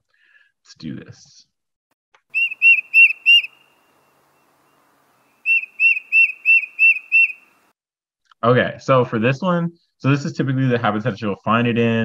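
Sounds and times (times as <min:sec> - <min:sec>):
bird whistled song: 0:02.3 - 0:04.1, 0:04.7 - 0:07.6.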